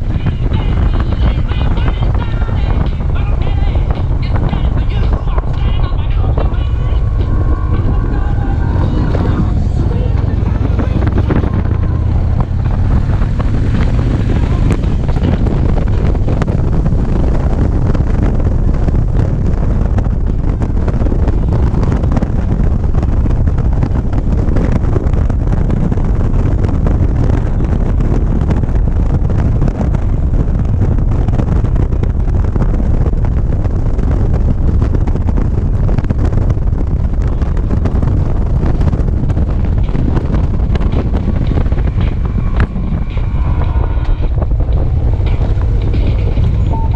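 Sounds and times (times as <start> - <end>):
heavy wind noise on microphone: 0.0 - 46.9
motorcycle engine: 0.0 - 46.9.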